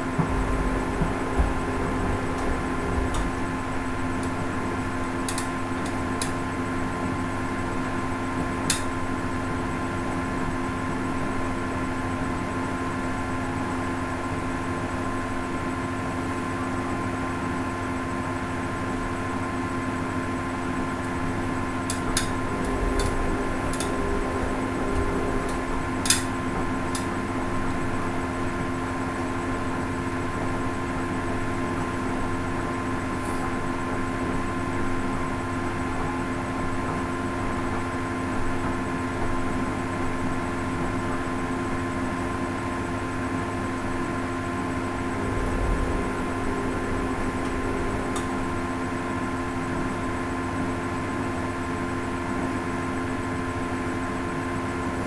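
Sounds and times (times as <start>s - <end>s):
washing machine motor hum: 0.0s - 55.0s
sharp clicks or knocks: 0.1s - 4.4s, 5.3s - 6.4s, 21.9s - 27.1s.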